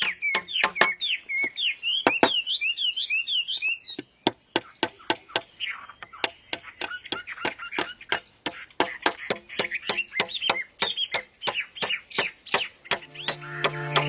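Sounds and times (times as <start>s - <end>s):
tool knocking on bamboo: 0.0s - 1.0s, 2.1s - 2.4s
birds chirping: 0.0s - 14.0s
music: 12.9s - 14.0s.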